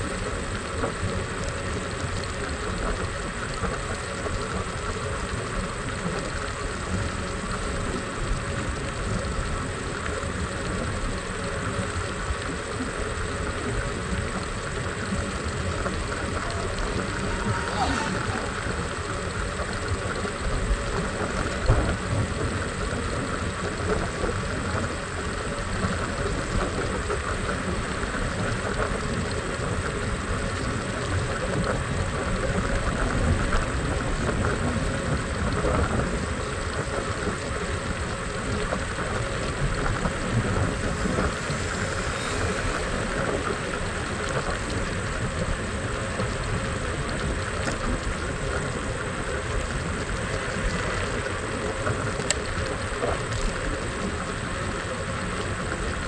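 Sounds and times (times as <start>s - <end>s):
scooter riding through traffic: 15.1s - 22.4s, 38.2s - 46.3s.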